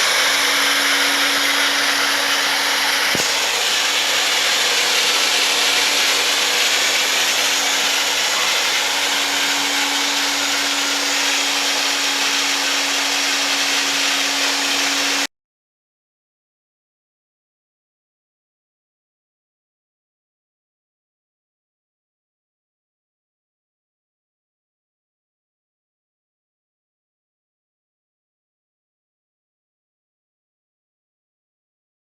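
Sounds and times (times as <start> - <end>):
drill motor whirring: 0.0 - 15.3.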